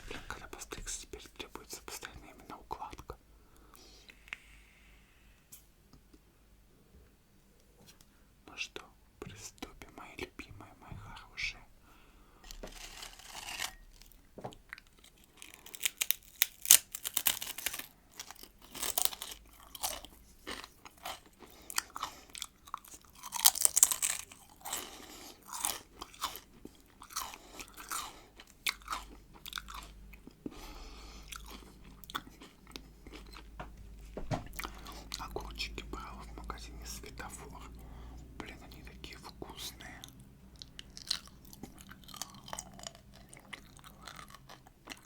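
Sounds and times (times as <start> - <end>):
soft chewing: 12.4 - 45.0
crunchy pickle bites: 12.5 - 30.4, 40.6 - 45.0.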